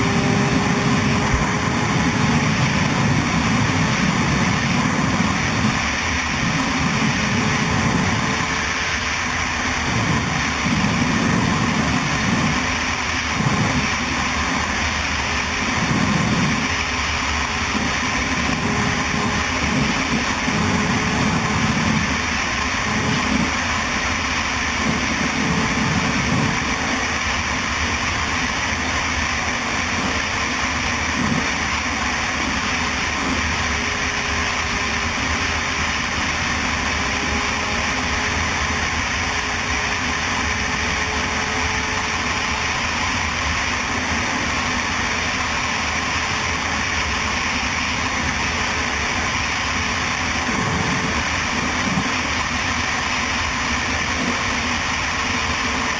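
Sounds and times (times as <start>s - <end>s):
motorcycle engine running: 0.0s - 55.9s
rushing noise: 0.0s - 55.9s.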